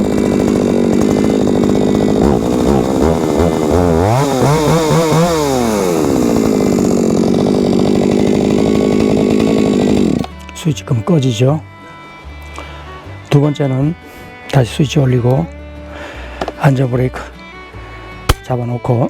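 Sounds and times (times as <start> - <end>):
chainsaw engine idling and revving: 0.0 - 11.4.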